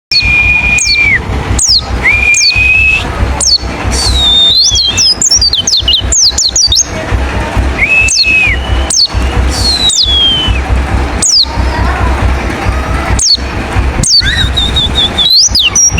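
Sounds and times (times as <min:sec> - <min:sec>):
bird whistling and twittering: 0:00.1 - 0:06.9, 0:07.8 - 0:10.6, 0:11.2 - 0:11.5, 0:13.2 - 0:13.4, 0:14.0 - 0:15.9.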